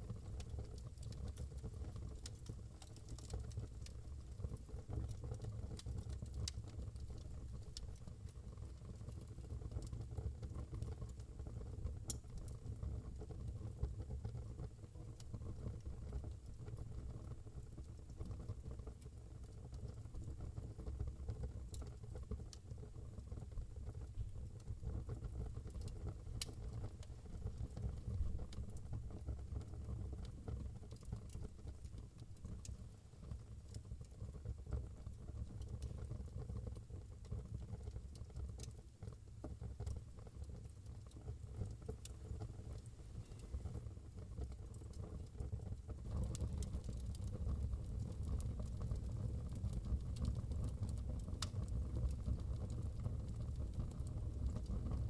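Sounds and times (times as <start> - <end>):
fire crackles and pops: 0.0 - 55.0
wood fire rumbling: 24.3 - 55.0.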